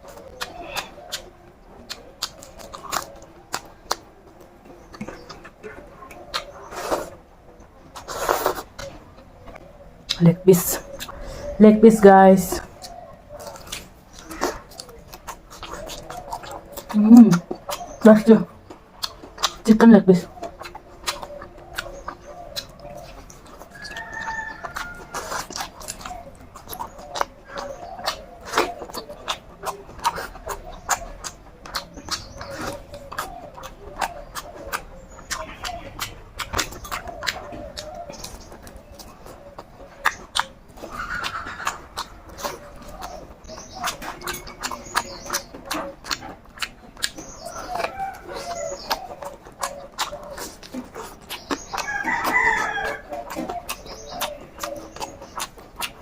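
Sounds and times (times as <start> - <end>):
chewing and lip-smacking: 0.0 - 56.0
chickens clucking: 0.0 - 56.0
wet mouth clicks: 12.5 - 19.7, 20.3 - 56.0.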